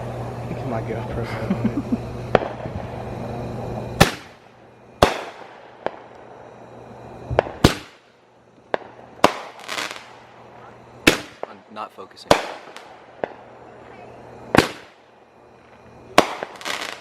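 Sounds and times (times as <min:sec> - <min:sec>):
low steady hum: 0:00.0 - 0:17.0
firework cake bangs: 0:04.0 - 0:04.4, 0:05.0 - 0:06.0, 0:07.3 - 0:08.0, 0:08.7 - 0:10.1, 0:11.0 - 0:11.6, 0:12.3 - 0:13.4, 0:14.5 - 0:15.0, 0:16.2 - 0:17.0.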